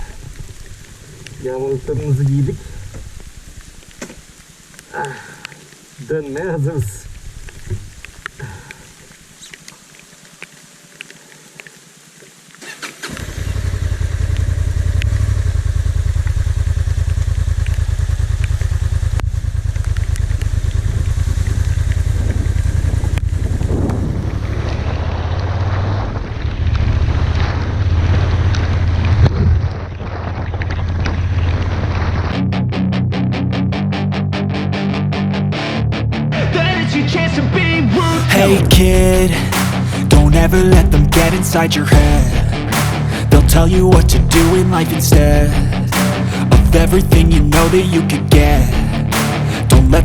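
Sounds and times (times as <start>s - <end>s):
motorcycle engine rumble: 13.0s - 32.5s, 37.9s - 50.0s
wind noise on microphone: 20.5s - 32.3s.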